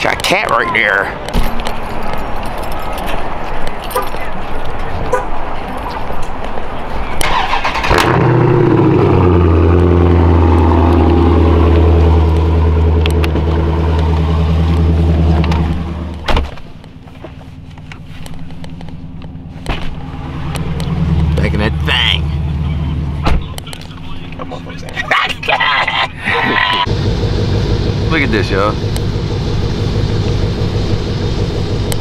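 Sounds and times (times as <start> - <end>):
car engine starting and idling: 7.1 - 32.0
car door thumping shut: 16.2 - 16.6, 23.2 - 23.5.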